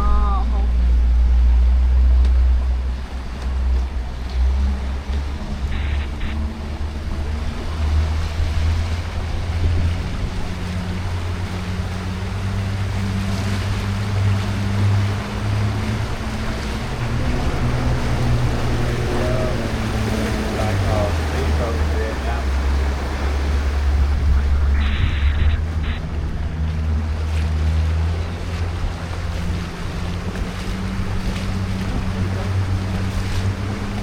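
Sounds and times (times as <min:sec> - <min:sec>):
boat engine droning: 0:00.0 - 0:34.0
water rushing along hull: 0:00.0 - 0:34.0.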